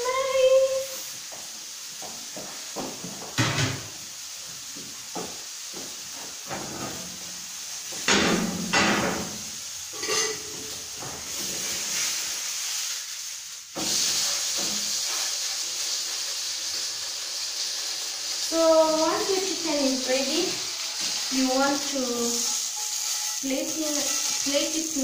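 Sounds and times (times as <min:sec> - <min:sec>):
chicken sizzling in a pan: 0:00.0 - 0:25.0
pans or utensils knocking: 0:03.3 - 0:03.8, 0:08.0 - 0:09.4, 0:10.0 - 0:10.7.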